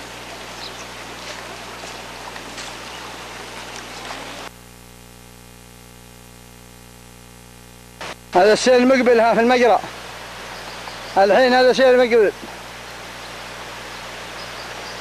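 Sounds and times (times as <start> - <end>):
rain falling: 0.0 - 4.5, 8.0 - 15.0
steady hum: 0.0 - 11.6.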